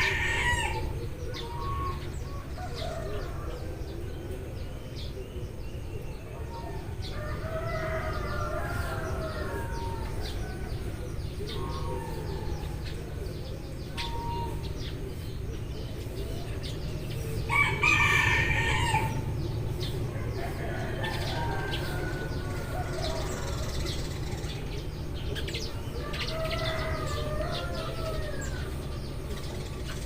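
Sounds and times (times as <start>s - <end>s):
rooster crowing: 0.0s - 0.9s, 7.0s - 10.9s, 17.5s - 19.4s, 20.1s - 24.1s, 26.0s - 29.0s
sparrows chirping: 0.0s - 30.0s.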